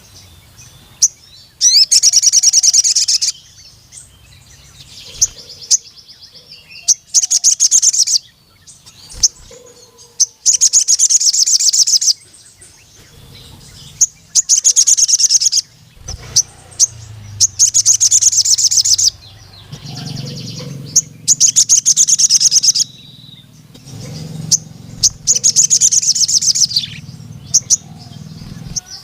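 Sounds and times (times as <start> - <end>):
bird trilling song: 0.0 - 29.0
sharp bird chirps: 0.0 - 29.0.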